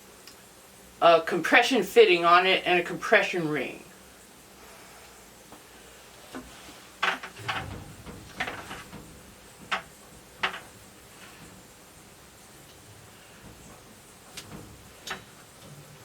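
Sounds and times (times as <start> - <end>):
plastic parts clicking and knocking: 6.4 - 11.7, 12.6 - 15.9.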